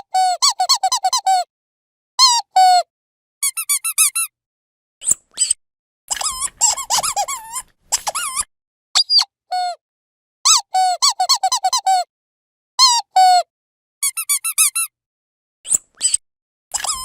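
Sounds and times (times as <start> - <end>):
dog squeaky toy squeaking: 0.2 - 1.4, 3.4 - 4.3, 5.4 - 9.7, 10.5 - 12.0, 14.0 - 14.9, 16.0 - 17.0.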